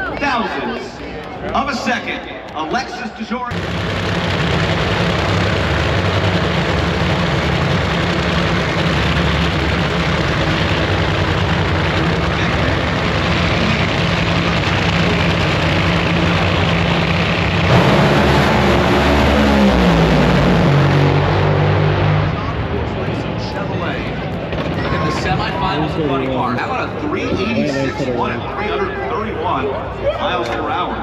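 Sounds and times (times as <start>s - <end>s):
loud engine running: 3.5s - 29.4s
second engine falling in pitch: 10.4s - 22.7s.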